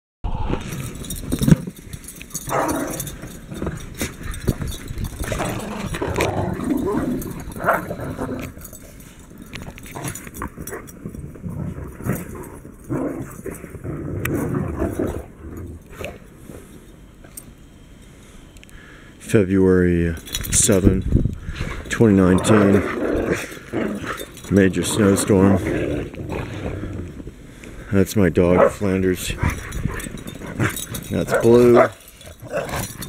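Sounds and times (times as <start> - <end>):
dogs growling and barking: 0.6 - 16.5, 21.5 - 27.5, 28.5 - 33.0.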